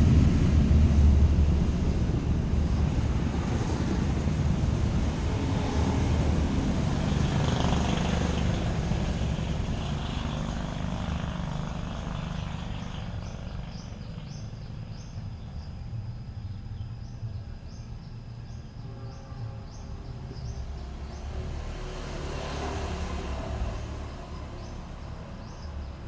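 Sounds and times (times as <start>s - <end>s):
loud droning motor: 0.0s - 15.5s.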